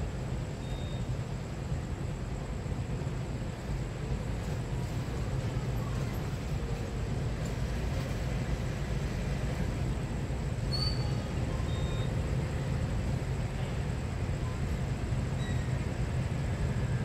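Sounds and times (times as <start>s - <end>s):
train rumbling: 0.0s - 17.0s
short high squeak: 10.7s - 12.2s, 15.4s - 15.9s.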